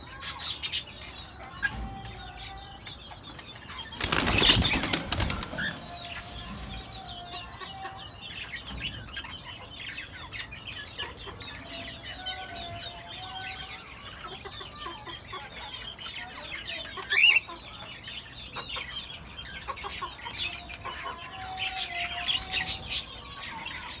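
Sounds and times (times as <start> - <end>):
cockatiels chirping and chattering: 2.5 - 24.0
wings fluttering: 3.8 - 7.2.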